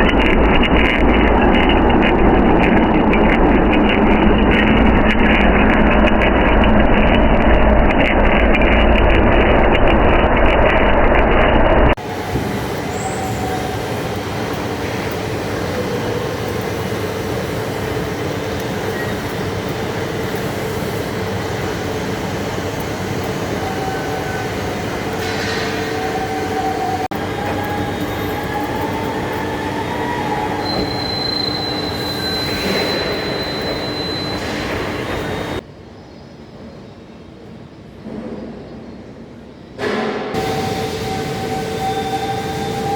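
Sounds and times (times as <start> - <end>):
lathe machining steel: 0.0 - 35.6.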